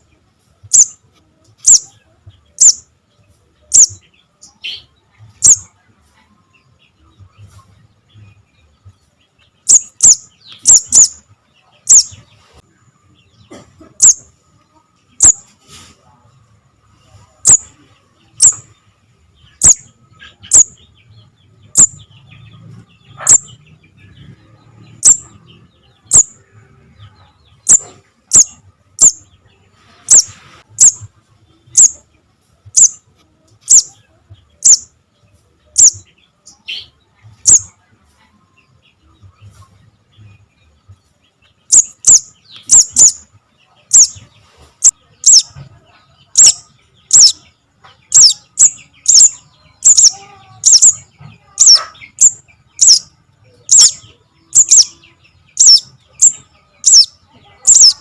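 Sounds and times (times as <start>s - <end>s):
bird high sharp chips: 9.7s - 11.2s, 41.7s - 43.2s, 49.9s - 51.0s, 51.6s - 53.0s, 54.6s - 54.9s, 55.6s - 57.1s, 57.7s - 58.0s.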